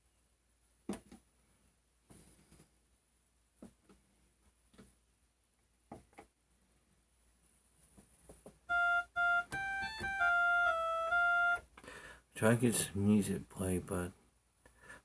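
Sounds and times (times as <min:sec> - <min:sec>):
faint taps: 0:07.9 - 0:08.6
electronic keyboard notes: 0:08.7 - 0:11.7.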